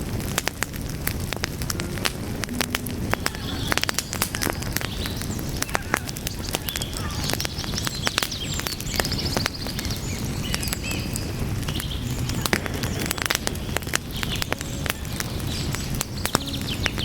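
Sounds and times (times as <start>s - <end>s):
burning wood crackling: 0.0s - 17.0s
steady low rumble: 1.3s - 5.8s, 11.3s - 16.1s.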